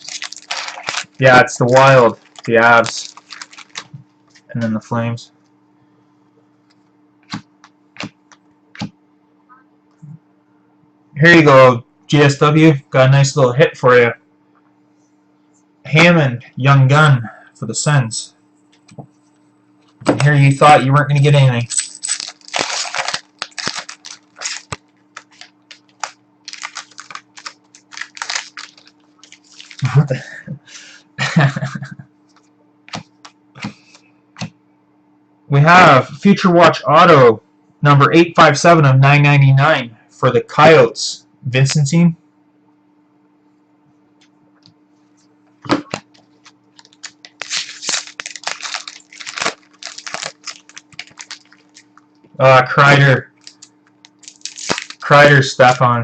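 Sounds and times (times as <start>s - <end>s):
card packs rustling and crinkling: 0.0s - 4.5s, 21.7s - 30.1s, 45.7s - 52.0s, 53.4s - 55.8s.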